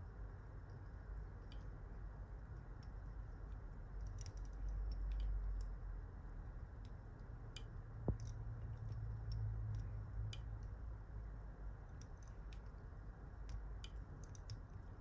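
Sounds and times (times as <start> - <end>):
low steady hum: 0.0 - 15.0
small clicks of tools: 0.6 - 5.8, 6.7 - 10.8, 11.8 - 15.0.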